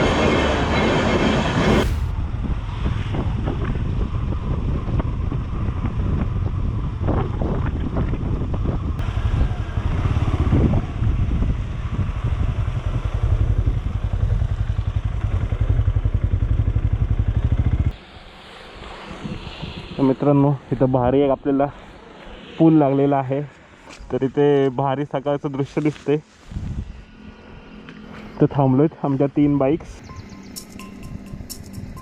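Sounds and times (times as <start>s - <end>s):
wind on microphone: 0.0s - 18.0s, 18.8s - 23.4s, 26.4s - 27.7s
motorcycle engine running: 4.4s - 17.9s.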